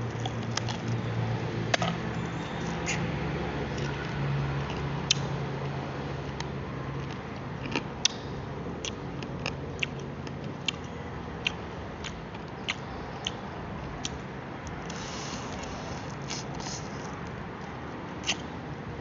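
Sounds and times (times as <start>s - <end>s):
crunchy chewing and biting: 0.0s - 3.1s, 3.7s - 18.6s
steady background noise: 0.0s - 19.0s.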